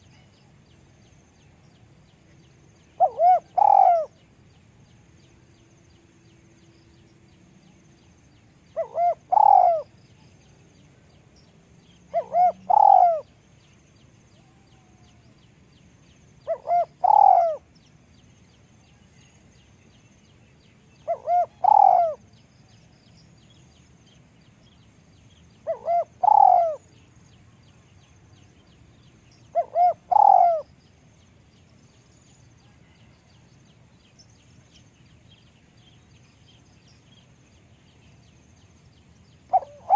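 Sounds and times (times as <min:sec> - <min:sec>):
dove cooing: 0:03.0 - 0:04.2, 0:08.8 - 0:09.9, 0:12.1 - 0:13.3, 0:16.4 - 0:17.7, 0:21.0 - 0:22.3, 0:25.6 - 0:26.9, 0:29.5 - 0:30.7, 0:39.5 - 0:39.9.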